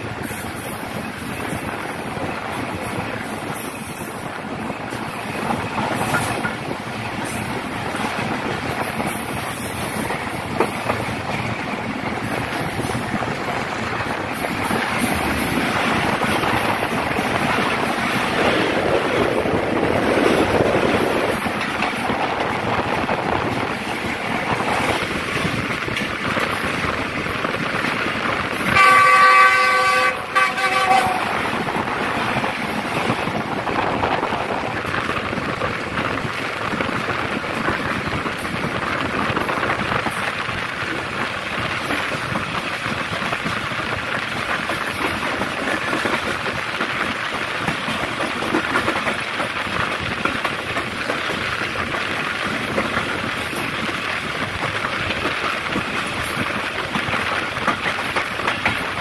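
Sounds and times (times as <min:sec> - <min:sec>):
train passing on next track: 0:00.0 - 0:59.0
train running at speed: 0:00.0 - 0:59.0
train horn: 0:28.7 - 0:31.5.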